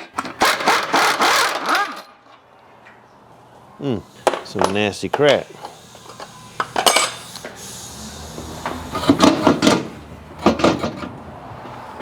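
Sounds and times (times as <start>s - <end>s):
steady low hum: 3.6s - 10.4s
hand tools clanking on metal: 4.2s - 7.4s.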